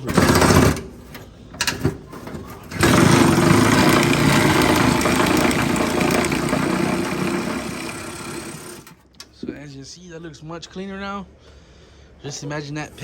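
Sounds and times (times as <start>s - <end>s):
motor-driven machine running: 2.7s - 9.0s.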